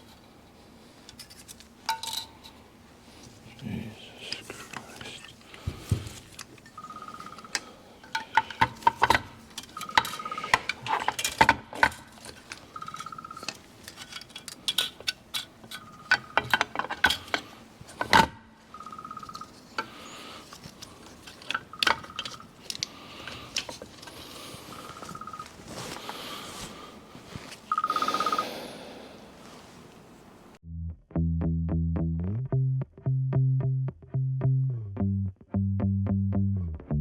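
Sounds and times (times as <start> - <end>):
metal parts and tools clinking: 1.1 - 2.5, 6.5 - 26.0.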